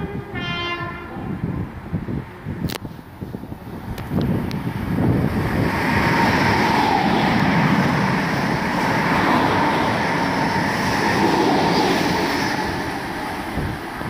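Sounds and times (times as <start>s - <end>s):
train rushing past: 3.4s - 14.0s.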